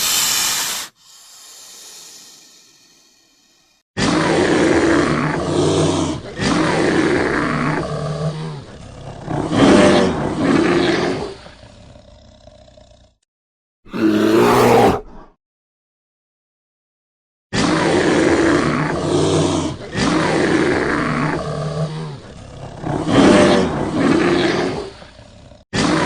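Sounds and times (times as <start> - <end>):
large animal roaring: 4.0 - 13.2, 13.9 - 15.3, 17.6 - 26.0.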